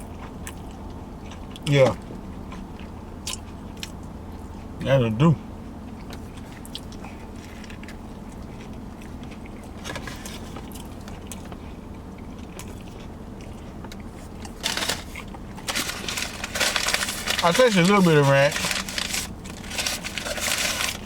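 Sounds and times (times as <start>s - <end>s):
car idling heard inside cabin: 0.0s - 21.0s
loud rustling: 14.6s - 21.0s.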